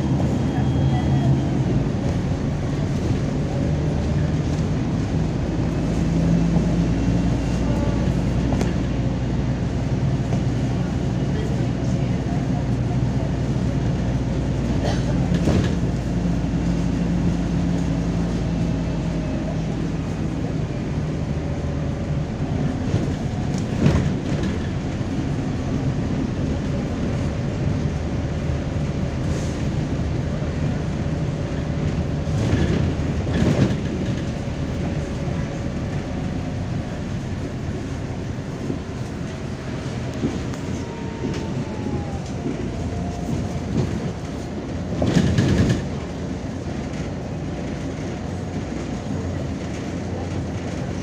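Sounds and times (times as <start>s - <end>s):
bus engine and road rumble: 0.0s - 51.0s.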